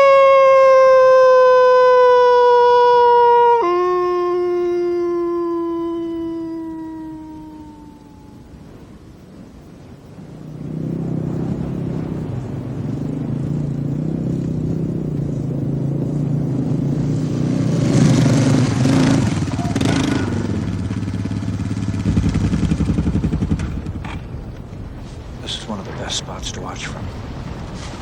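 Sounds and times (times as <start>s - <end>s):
rushing noise: 6.8s - 28.0s
small vehicle engine running: 13.1s - 24.2s.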